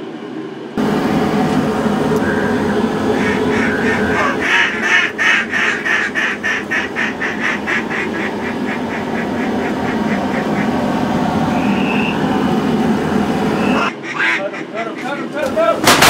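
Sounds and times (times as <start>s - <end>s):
steady rushing noise: 0.2s - 16.0s
duck quacks: 3.1s - 10.8s, 13.8s - 15.3s
short higher bird call: 13.6s - 14.2s.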